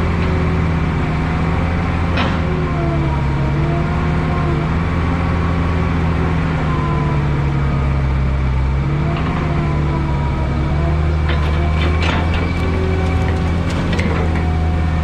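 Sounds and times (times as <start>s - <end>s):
heavy diesel engine running: 11.2s - 15.0s.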